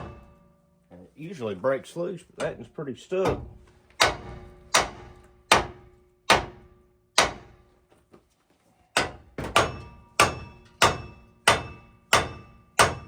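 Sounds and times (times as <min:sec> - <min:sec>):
hammer striking steel: 0:00.0 - 0:00.6, 0:03.2 - 0:07.6, 0:08.9 - 0:13.0.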